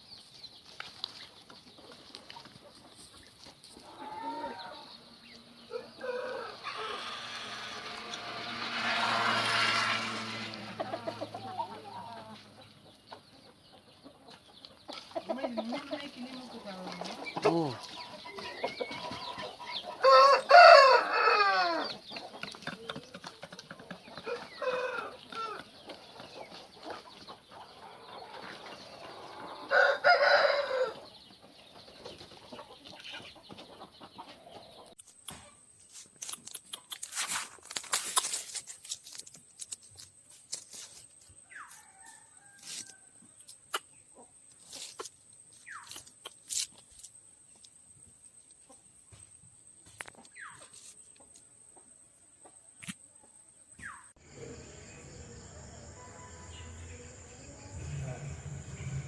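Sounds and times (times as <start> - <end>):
rooster crowing: 5.7 - 12.4, 19.9 - 22.0, 24.2 - 25.6, 29.0 - 31.0
chicken clucking: 10.7 - 20.9, 21.7 - 35.6.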